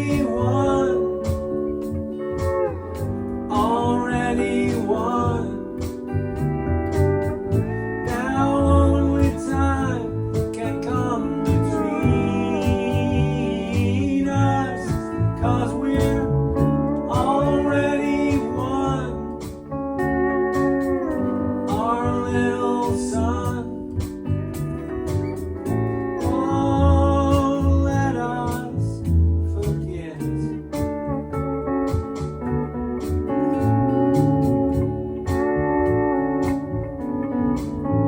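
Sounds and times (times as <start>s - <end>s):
person singing: 0.0s - 6.4s, 7.0s - 19.7s, 20.5s - 24.2s, 25.2s - 30.6s
band playing a slow song: 0.0s - 38.0s
guitars: 0.0s - 38.0s.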